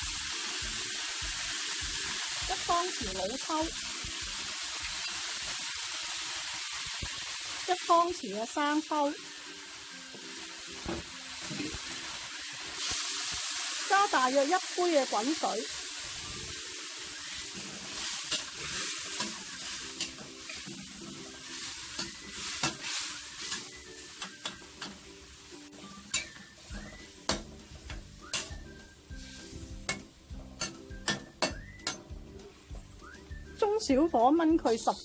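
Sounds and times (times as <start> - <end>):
liquid sizzling in a hot pan: 0.0 - 35.0
stirring in a pan: 17.2 - 25.1
utensil clicking against a pan: 26.1 - 28.6.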